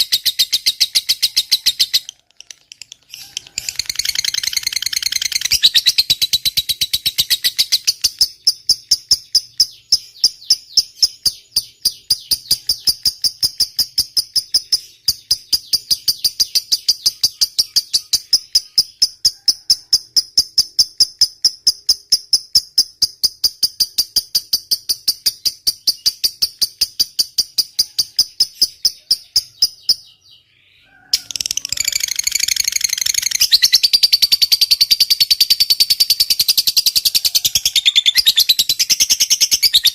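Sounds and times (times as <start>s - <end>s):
lovebird chattering: 0.0s - 30.2s, 31.2s - 39.9s.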